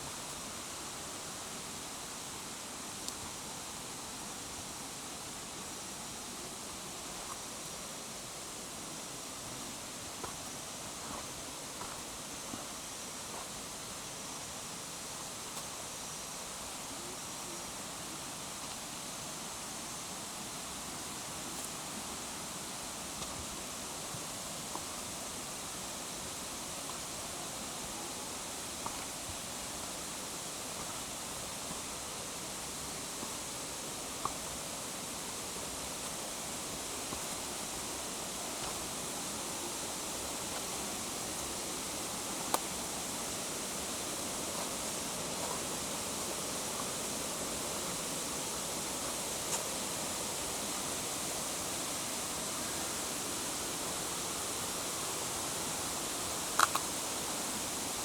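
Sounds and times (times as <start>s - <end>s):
rushing water: 17.7s - 58.0s.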